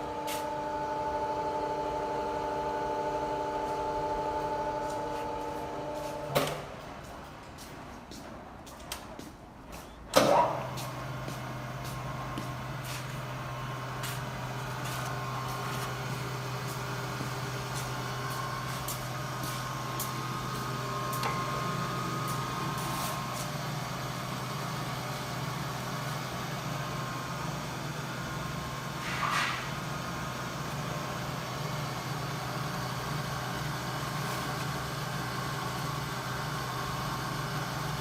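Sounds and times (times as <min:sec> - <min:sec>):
lathe humming: 0:10.9 - 0:29.0.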